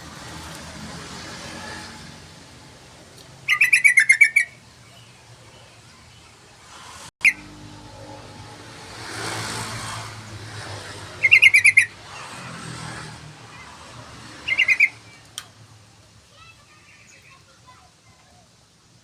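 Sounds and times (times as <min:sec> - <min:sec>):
bulbul calling: 0:03.4 - 0:05.7, 0:11.1 - 0:12.0, 0:14.4 - 0:15.2.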